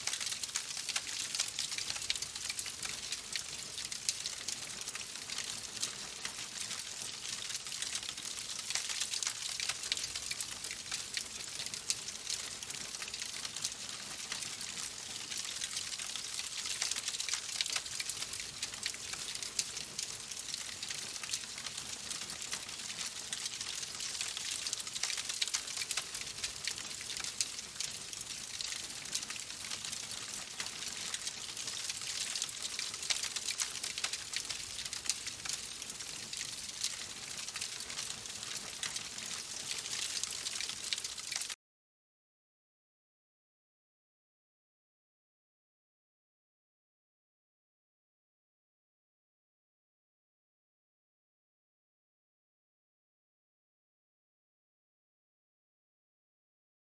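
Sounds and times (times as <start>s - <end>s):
wood fire crackling: 0.0s - 41.6s.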